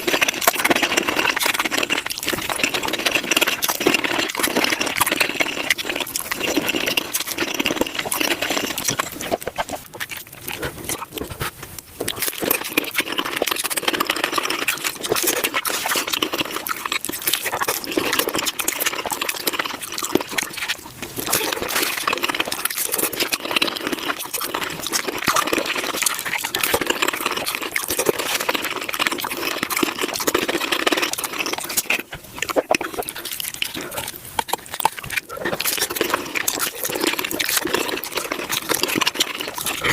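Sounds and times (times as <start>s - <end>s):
fast chewing and crunching: 0.0s - 39.9s.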